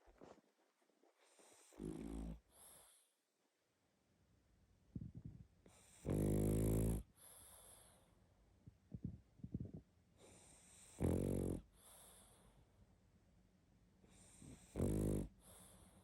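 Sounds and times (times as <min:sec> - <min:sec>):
dog snoring heavily: 0:01.6 - 0:02.7, 0:05.7 - 0:07.8, 0:10.3 - 0:12.2, 0:14.1 - 0:15.8.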